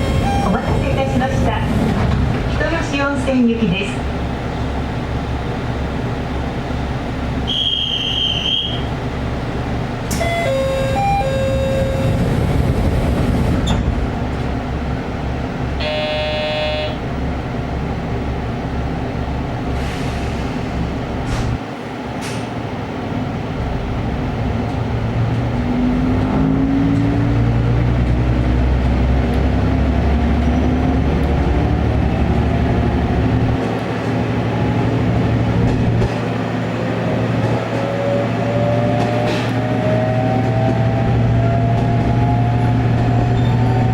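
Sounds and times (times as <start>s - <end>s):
diesel railcar engine: 0.0s - 43.9s
short signal tones: 10.1s - 12.2s, 15.8s - 17.0s
train horn blast: 15.8s - 17.0s.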